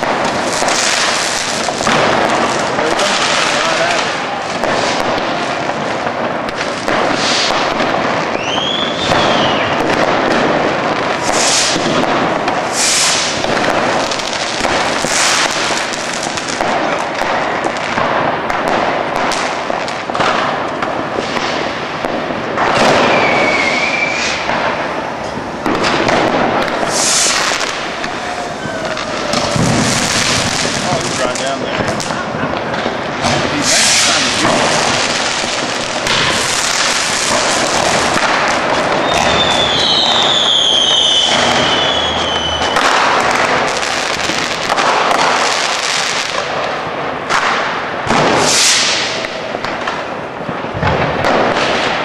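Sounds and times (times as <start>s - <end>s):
fireworks bangs and crackling: 0.0s - 52.0s
firework whistle: 7.0s - 10.0s, 11.2s - 14.3s, 22.6s - 31.3s, 33.2s - 46.2s, 47.3s - 49.4s.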